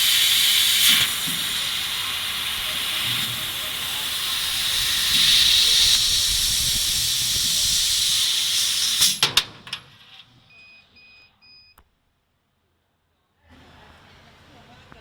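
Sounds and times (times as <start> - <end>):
laser cutter gas hiss: 0.0 - 9.5
short electronic beeps: 10.5 - 11.8.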